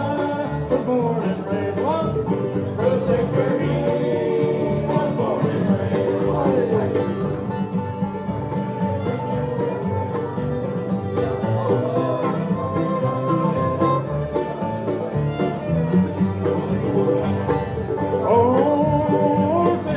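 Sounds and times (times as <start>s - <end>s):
banjo: 0.0s - 19.9s
bluegrass band playing: 0.0s - 19.9s
guitar: 0.0s - 19.9s.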